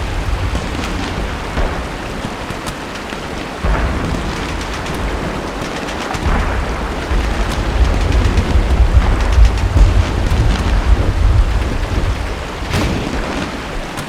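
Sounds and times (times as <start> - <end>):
heavy rain hissing: 0.0 - 14.0
deep low rumble: 6.3 - 13.2.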